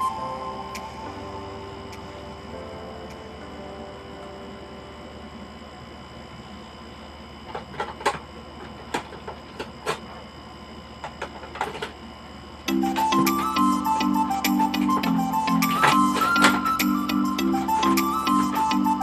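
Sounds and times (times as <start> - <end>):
background music: 0.0 - 5.1, 12.7 - 19.0
faint steady hum: 0.0 - 19.0.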